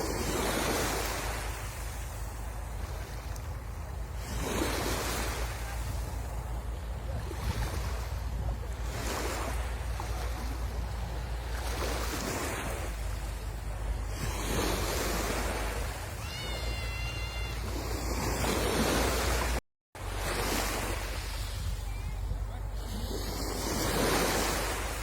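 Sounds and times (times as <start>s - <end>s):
wind rumble on microphone: 0.0s - 16.2s, 16.8s - 25.0s
sea waves washing onto shore: 0.0s - 25.0s
short high whistle-like call: 16.2s - 17.9s.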